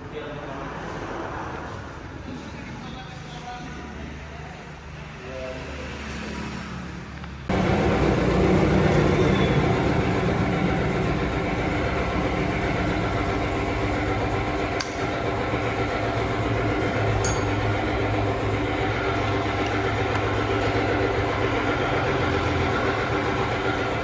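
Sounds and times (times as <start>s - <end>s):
motorcycle engine running: 7.5s - 24.0s.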